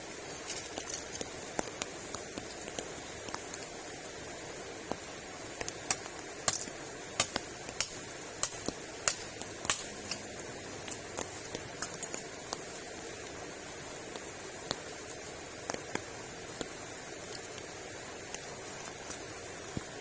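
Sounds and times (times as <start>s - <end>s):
steady rain hiss: 0.0s - 20.0s
sharp taps and ticks: 5.6s - 10.2s.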